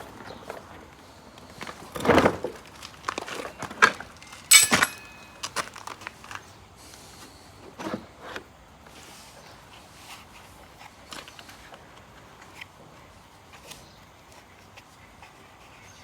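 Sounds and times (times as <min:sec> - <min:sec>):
lawn mower parts knocking: 0:04.5 - 0:05.5
metal clatter with ring: 0:04.5 - 0:05.6.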